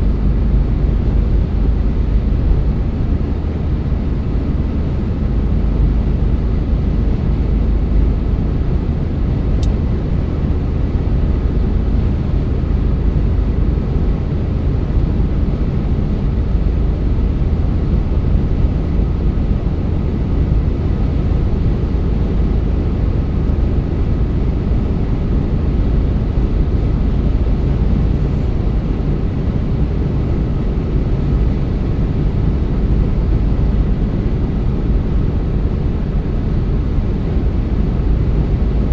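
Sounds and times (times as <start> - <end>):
car engine and tyre rumble: 0.0 - 38.9
small click: 9.6 - 9.8.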